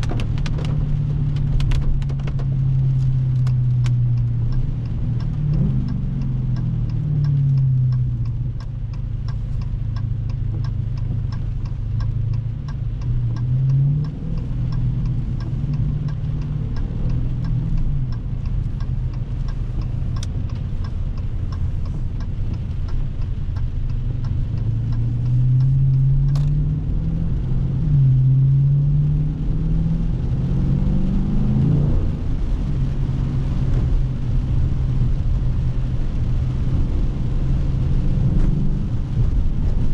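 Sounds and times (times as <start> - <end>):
steady ticking: 0.0 - 29.0
car engine revving: 0.0 - 39.9.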